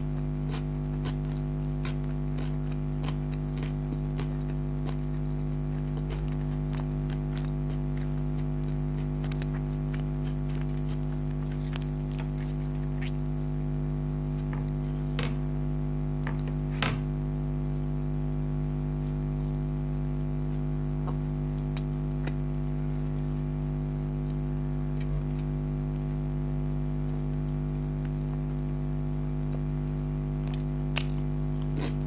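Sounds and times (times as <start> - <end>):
crunchy bites: 0.0 - 15.3, 18.4 - 32.0
low electrical hum: 0.0 - 32.0
chewing and mouth clicks: 0.1 - 13.3, 20.4 - 22.8, 24.2 - 26.4, 29.4 - 32.0.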